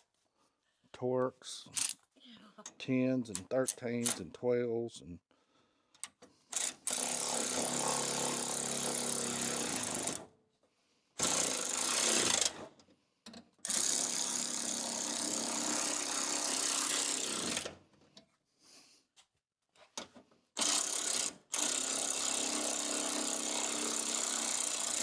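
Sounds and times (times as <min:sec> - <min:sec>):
power tool running bolts: 0:06.5 - 0:10.2, 0:11.2 - 0:12.7, 0:13.7 - 0:17.7, 0:20.6 - 0:25.0.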